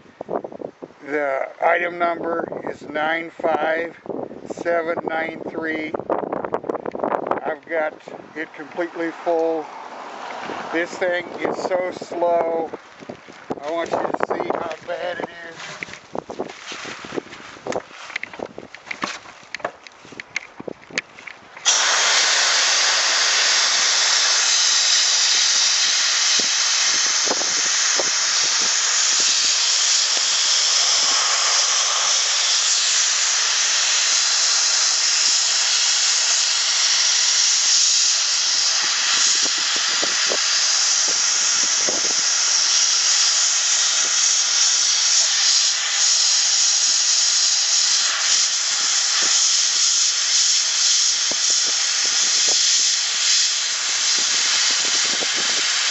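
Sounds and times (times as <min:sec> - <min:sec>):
sandblasting gun hissing: 0:10.4 - 0:12.6, 0:21.6 - 0:55.9.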